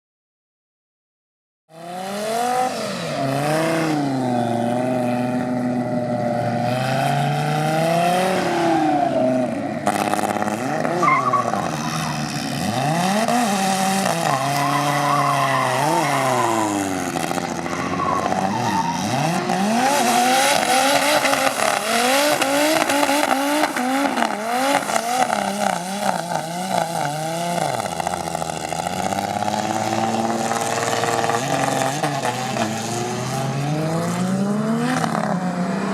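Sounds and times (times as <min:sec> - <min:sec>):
car engine revving: 0:01.7 - 0:35.9
tyres squealing: 0:10.8 - 0:13.0, 0:14.1 - 0:20.0.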